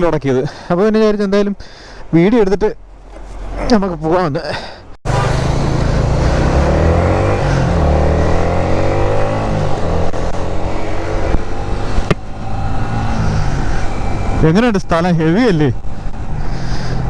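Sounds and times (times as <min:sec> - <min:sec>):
vehicle engines on road: 0:05.0 - 0:17.0.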